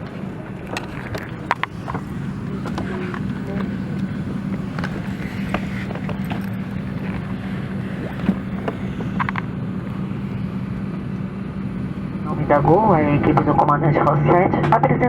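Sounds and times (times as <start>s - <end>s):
constant low hum: 0.0s - 15.0s
faint clicks and knocks: 8.1s - 10.0s.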